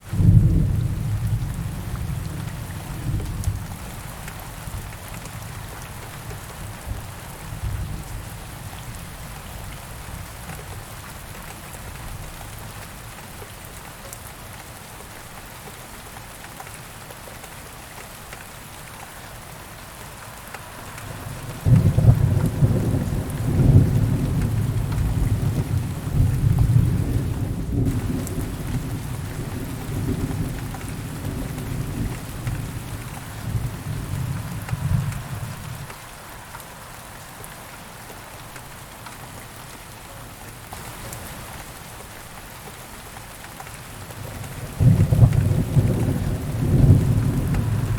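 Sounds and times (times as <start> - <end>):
heavy rain hissing: 17.8 - 47.9
thunder rumbling: 20.8 - 35.9, 44.3 - 47.9
loud peal of thunder: 21.2 - 30.5, 44.6 - 47.9.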